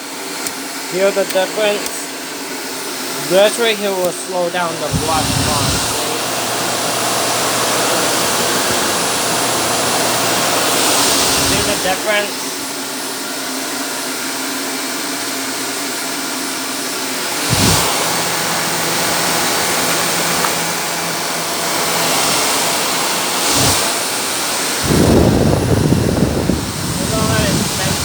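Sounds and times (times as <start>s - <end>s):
upright vacuum cleaner running: 0.0s - 28.0s
loud low rumble: 17.5s - 18.3s, 24.8s - 28.0s.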